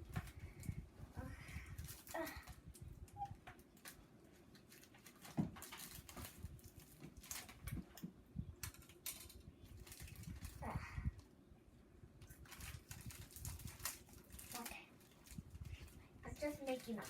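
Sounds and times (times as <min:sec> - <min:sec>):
plastic wrapper crinkling: 0:01.6 - 0:08.0, 0:08.7 - 0:10.7, 0:12.2 - 0:17.0.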